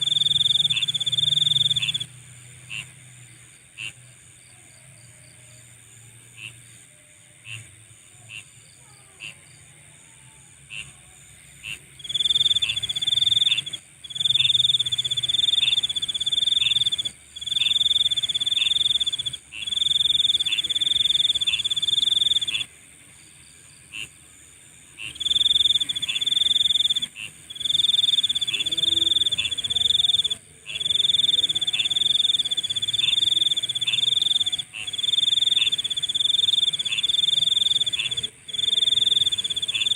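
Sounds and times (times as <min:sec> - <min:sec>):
insect high trill: 0:00.0 - 0:02.9, 0:11.6 - 0:24.2, 0:25.0 - 0:39.9
insect short chirps: 0:00.0 - 0:02.9, 0:11.7 - 0:24.2, 0:25.0 - 0:39.9
faint insect chorus: 0:00.0 - 0:39.9.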